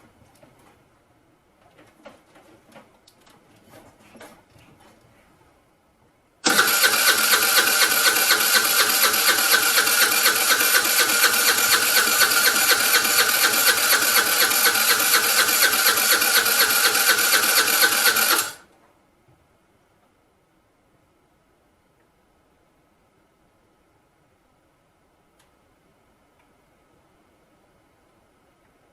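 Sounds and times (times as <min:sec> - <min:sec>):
scooter starter cranking engine: 0:06.4 - 0:18.6.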